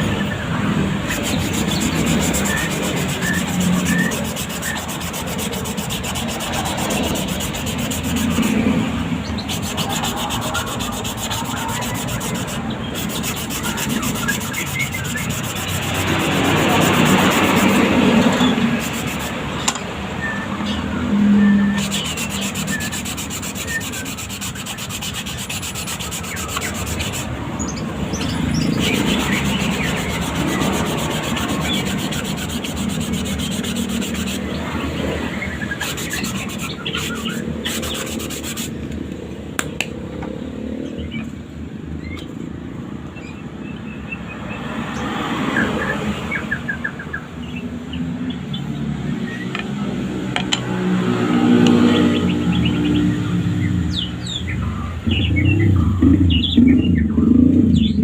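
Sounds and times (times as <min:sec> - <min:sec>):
scratchy sanding strokes: 0:00.0 - 0:19.6, 0:21.6 - 0:39.0.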